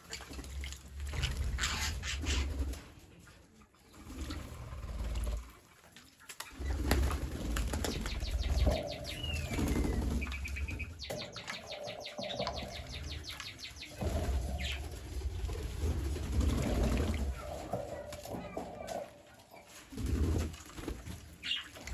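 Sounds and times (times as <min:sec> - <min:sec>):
birds calling: 0:01.2 - 0:02.8, 0:06.5 - 0:20.4, 0:21.4 - 0:21.9
chattering clicks: 0:07.9 - 0:15.0.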